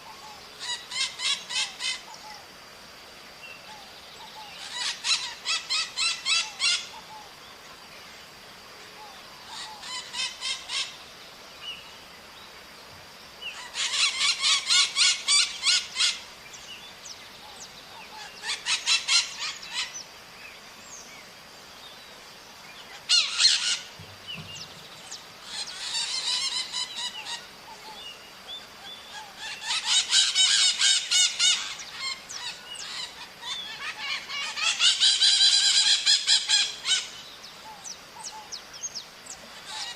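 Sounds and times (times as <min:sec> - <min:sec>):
parrots screeching: 0:00.6 - 0:02.0, 0:04.6 - 0:06.9, 0:09.5 - 0:10.9, 0:13.6 - 0:16.2, 0:18.2 - 0:19.9, 0:23.0 - 0:23.9, 0:25.4 - 0:27.4, 0:29.1 - 0:37.1, 0:39.6 - 0:39.9.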